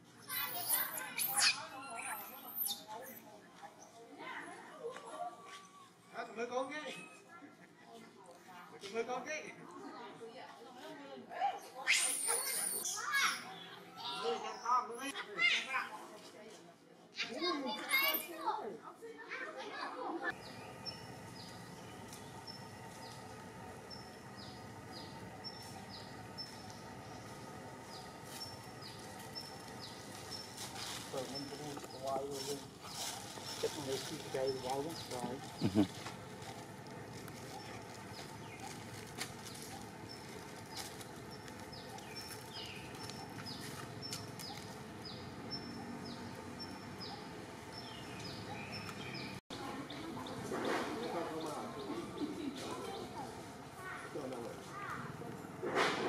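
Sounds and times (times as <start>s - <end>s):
steady outdoor hum: 0.0s - 6.1s, 7.3s - 56.0s.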